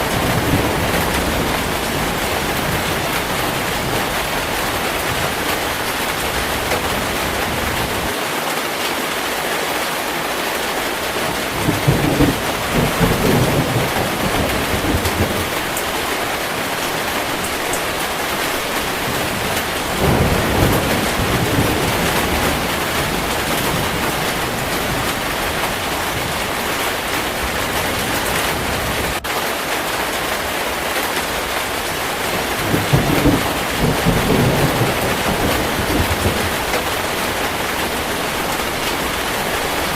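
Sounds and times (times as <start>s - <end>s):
rolling thunder: 0.0s - 8.1s, 11.2s - 29.3s, 31.8s - 39.9s
heavy rain: 0.0s - 39.9s.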